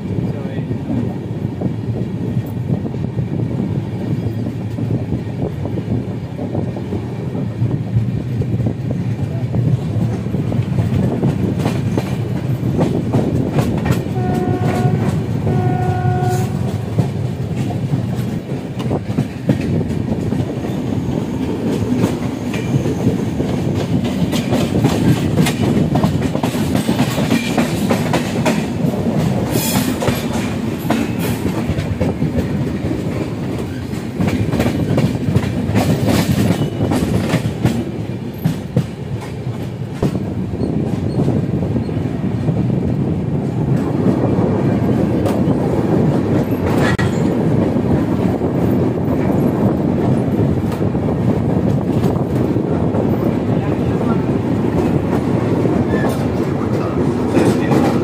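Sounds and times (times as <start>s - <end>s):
train rumble: 0.0s - 58.0s
train horn blasts: 14.1s - 16.8s
wheels clicking over rail joints: 16.4s - 42.6s.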